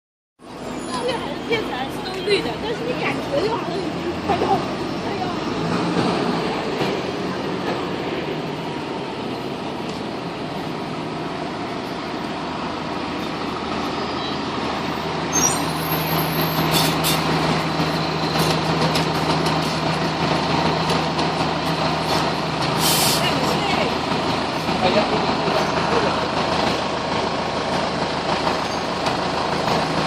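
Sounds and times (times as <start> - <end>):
diesel engine running: 0.4 - 30.0
air brake hisses: 22.8 - 23.2.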